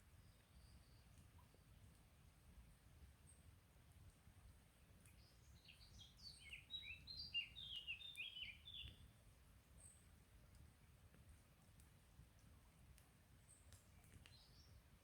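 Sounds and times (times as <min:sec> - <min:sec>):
songbird singing: 0:05.2 - 0:09.0, 0:14.2 - 0:14.8.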